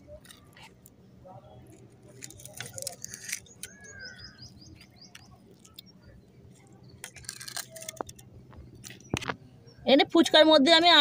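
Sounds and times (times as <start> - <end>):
bird chirping: 2.7 - 7.4.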